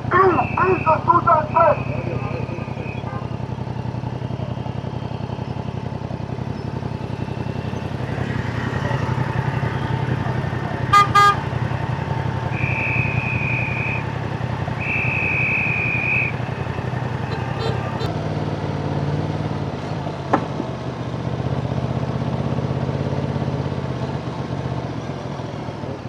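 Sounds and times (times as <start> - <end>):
motorcycle engine running: 0.0 - 26.0
road and wind noise: 0.0 - 26.0
vehicle horn toots: 0.2 - 3.5, 6.5 - 18.1.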